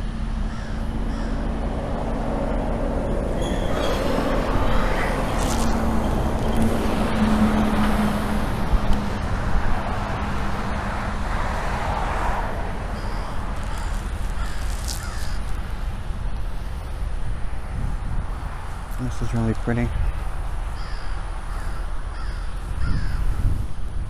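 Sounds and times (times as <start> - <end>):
low rumble: 0.0 - 19.0
birds calling: 3.3 - 6.8, 12.9 - 15.5, 20.7 - 23.3.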